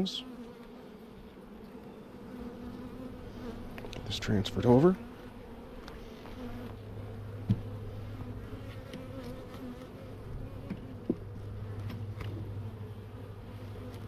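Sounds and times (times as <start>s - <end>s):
honey bees buzzing: 0.0s - 14.0s.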